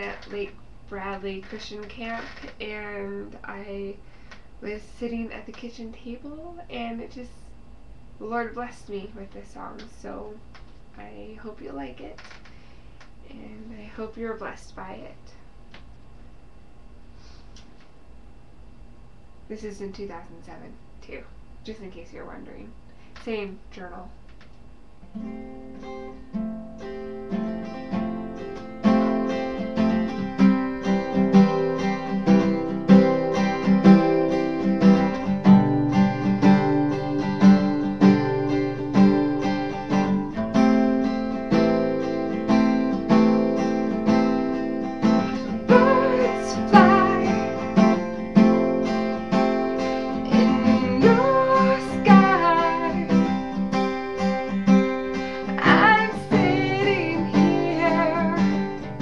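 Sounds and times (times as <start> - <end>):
acoustic guitar strumming: 25.1 - 59.0
person singing: 45.3 - 48.0, 50.2 - 53.4, 55.5 - 58.8.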